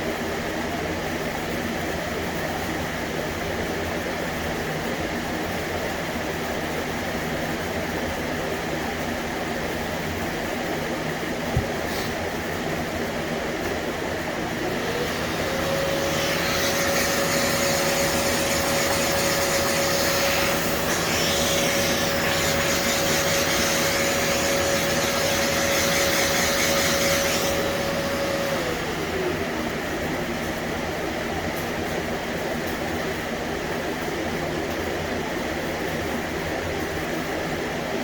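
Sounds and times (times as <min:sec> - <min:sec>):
hiss: 0:14.8 - 0:28.8
small motor spinning: 0:14.8 - 0:29.0.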